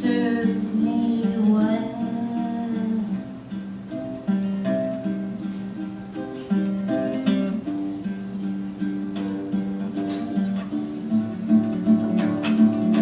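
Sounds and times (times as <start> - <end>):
person singing: 0.0 - 3.6
acoustic guitar fingerpicking: 0.0 - 13.0.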